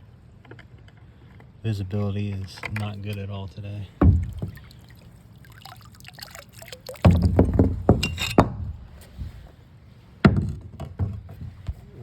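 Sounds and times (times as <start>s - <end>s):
water splashing off bottle: 4.0s - 8.0s.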